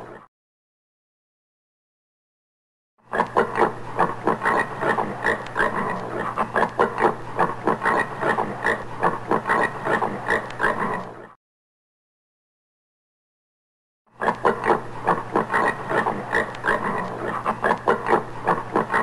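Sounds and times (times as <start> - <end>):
warthog grunting: 14.2 - 19.0.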